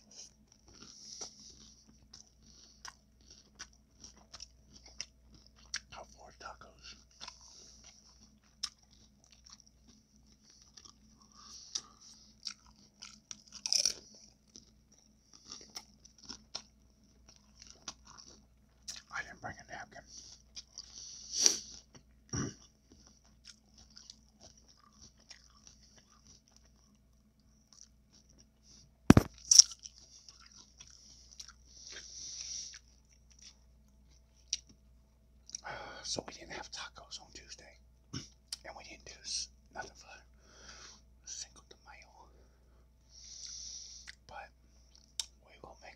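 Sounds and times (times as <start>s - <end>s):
person crunching and chewing food: 0.0s - 34.8s, 35.4s - 42.4s, 43.1s - 45.9s
crunchy bite: 10.8s - 14.6s, 29.1s - 31.6s.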